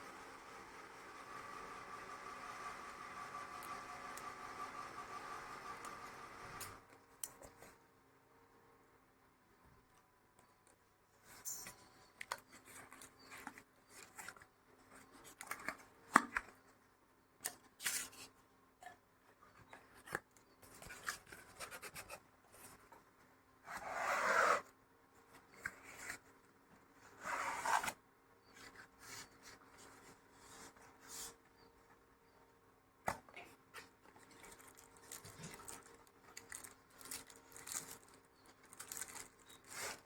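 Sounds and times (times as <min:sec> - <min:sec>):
cardboard rubbing and scraping: 0:23.7 - 0:24.7, 0:27.1 - 0:28.0
packaging rasping rustles: 0:34.2 - 0:40.0.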